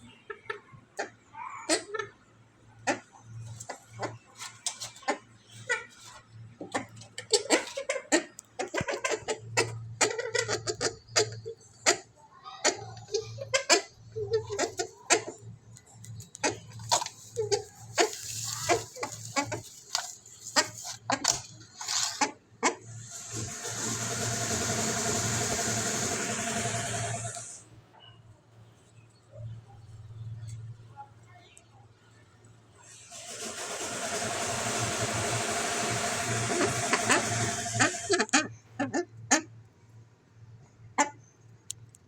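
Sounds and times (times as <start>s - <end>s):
swamphen clucks and clicks: 2.8s - 27.6s, 34.6s - 39.5s.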